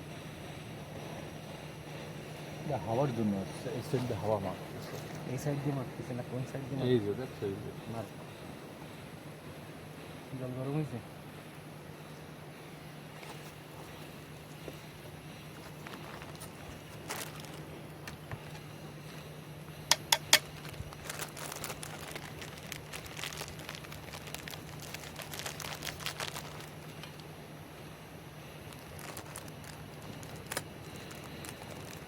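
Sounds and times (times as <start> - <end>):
steady low hum: 0.0 - 32.0
crinkling and rustling: 13.2 - 27.3, 28.6 - 32.0.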